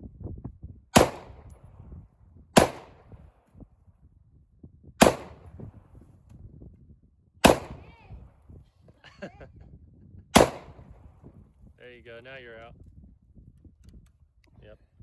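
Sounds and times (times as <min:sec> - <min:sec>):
rifle shots: 0:01.0 - 0:01.6, 0:02.6 - 0:03.2, 0:05.0 - 0:05.8, 0:07.4 - 0:08.0, 0:10.4 - 0:11.1.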